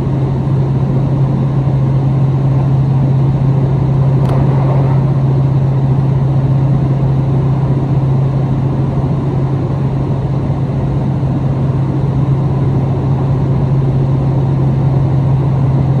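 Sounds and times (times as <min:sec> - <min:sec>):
low engine hum: 0:00.0 - 0:16.0
rail running noise: 0:04.0 - 0:08.8.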